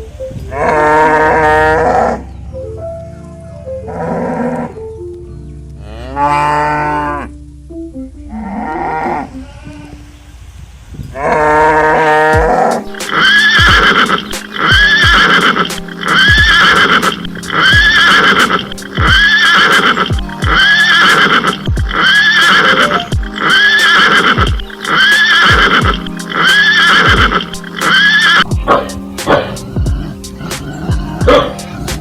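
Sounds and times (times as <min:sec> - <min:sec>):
looped horse whinny: 0:11.2 - 0:31.9
steady low beat: 0:12.2 - 0:32.0.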